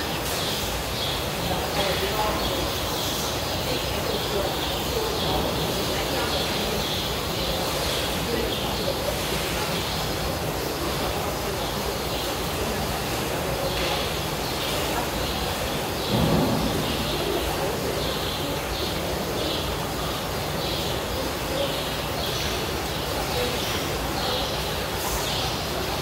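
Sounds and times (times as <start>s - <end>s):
steady background hiss: 0.0s - 26.0s
low thump: 16.1s - 17.4s.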